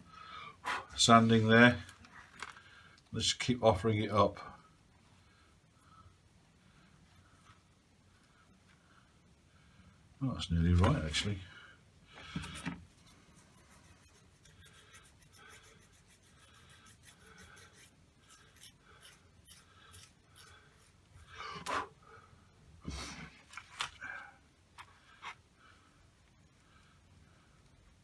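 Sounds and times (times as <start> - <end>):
sanding with nail file: 13.2 - 21.3.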